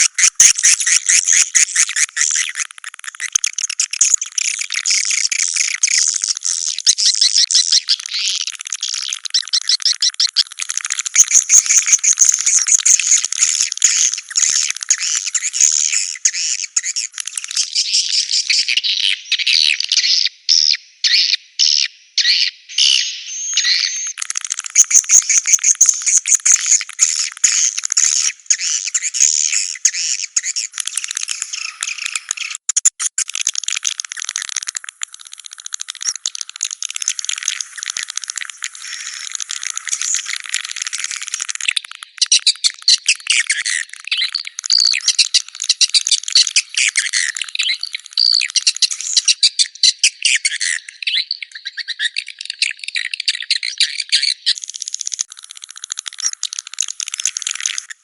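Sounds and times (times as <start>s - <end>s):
swiftlets twittering: 0.0s - 17.7s, 23.4s - 49.4s.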